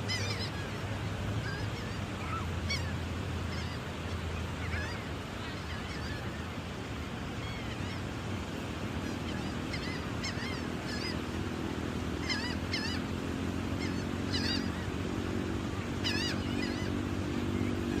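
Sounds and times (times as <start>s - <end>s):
gulls calling: 0.0s - 18.0s.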